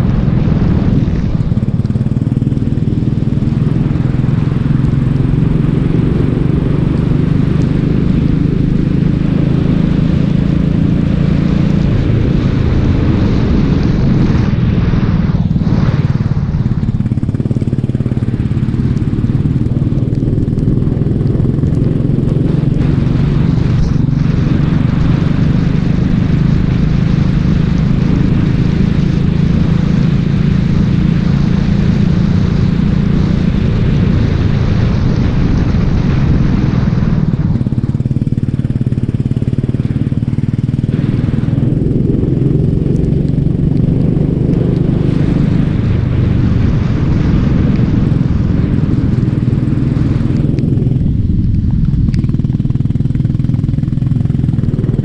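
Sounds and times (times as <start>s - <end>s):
kart engine running hard: 0.0s - 55.0s.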